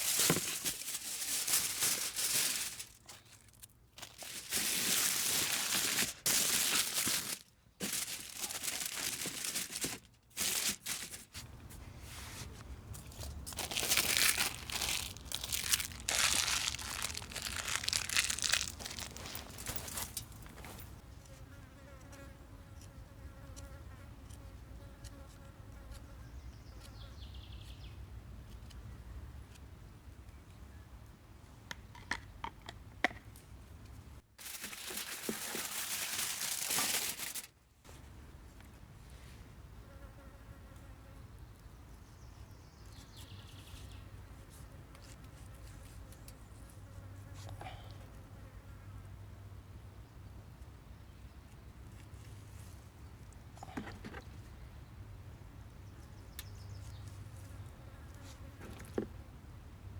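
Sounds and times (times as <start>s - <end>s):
crinkling rustling handling noise: 0.0s - 21.0s, 34.4s - 37.6s.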